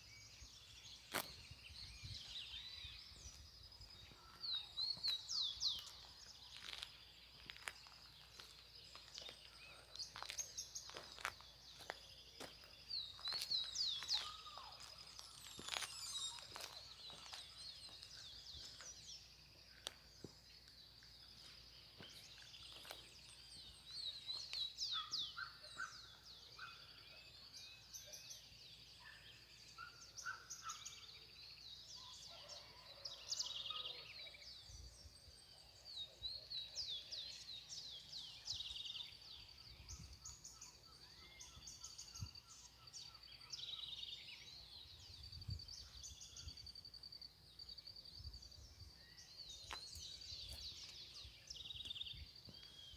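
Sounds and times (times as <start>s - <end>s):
wild birds chirping and calling: 0.0s - 20.5s, 21.2s - 46.8s
steady high bird trill: 10.1s - 18.0s.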